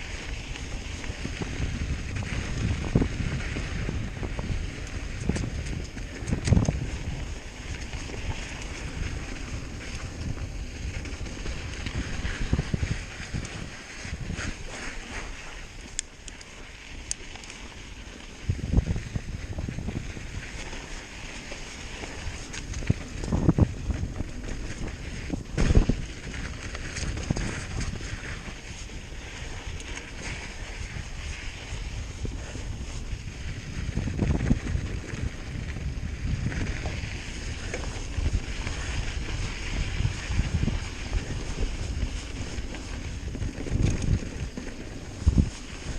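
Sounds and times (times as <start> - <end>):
wind rushing over microphone: 0.0 - 16.3, 17.8 - 45.9
bike thumping and rattling: 0.0 - 45.9
bike knocks and rattles: 19.5 - 30.8.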